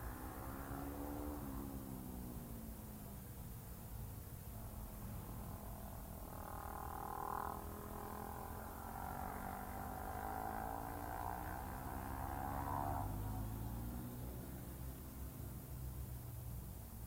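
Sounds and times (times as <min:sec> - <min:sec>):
constant low hum: 0:00.0 - 0:17.0
motorcycle engine running: 0:04.6 - 0:16.2.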